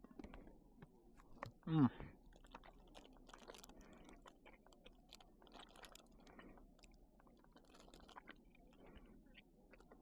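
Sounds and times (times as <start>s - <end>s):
chewing fruit snack: 1.1s - 10.0s.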